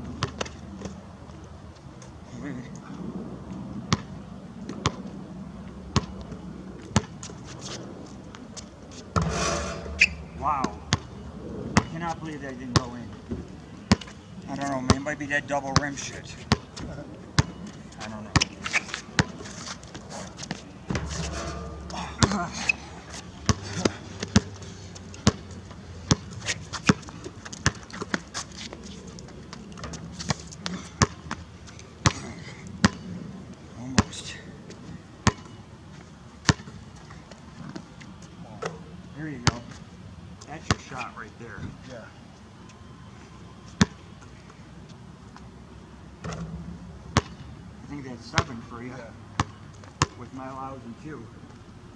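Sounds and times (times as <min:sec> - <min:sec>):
basketball bouncing on a court: 0:23.4 - 0:24.6, 0:25.2 - 0:25.5, 0:26.1 - 0:26.3, 0:35.2 - 0:35.6, 0:47.2 - 0:47.4, 0:49.4 - 0:50.2
basketball bouncing on court: 0:23.4 - 0:24.6, 0:47.2 - 0:47.4.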